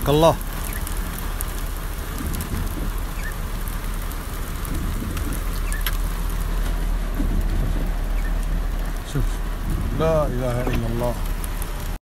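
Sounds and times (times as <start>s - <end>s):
heavy rain falling: 0.0s - 12.0s
low rumble: 0.0s - 12.0s
raindrops clicking: 0.0s - 12.0s.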